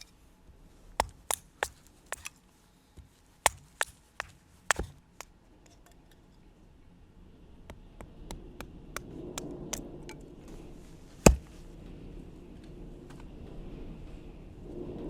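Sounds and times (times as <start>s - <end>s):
loud sharp chop: 1.0s - 2.3s, 3.5s - 5.0s, 11.2s - 11.6s
light quick chopping taps: 3.0s - 5.0s.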